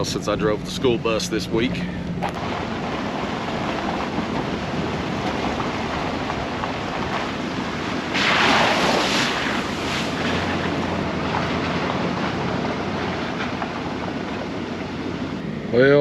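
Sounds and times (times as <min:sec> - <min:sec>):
truck tyre and road noise: 0:00.0 - 0:16.0
rushing hiss: 0:07.1 - 0:10.6.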